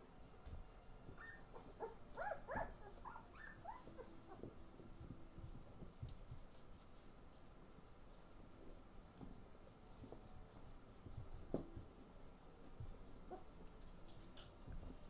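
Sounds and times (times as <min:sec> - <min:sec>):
puppies whimpering and yipping: 0:01.1 - 0:04.5.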